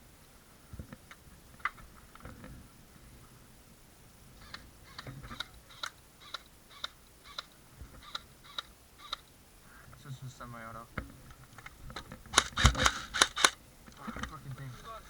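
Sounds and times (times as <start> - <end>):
airsoft gun shots: 12.4 - 13.6.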